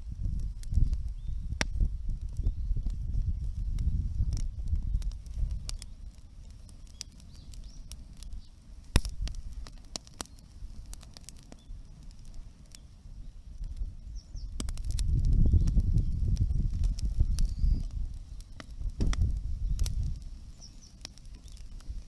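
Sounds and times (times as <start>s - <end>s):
wood fire crackling: 0.0s - 22.0s
low rumble: 18.8s - 20.2s.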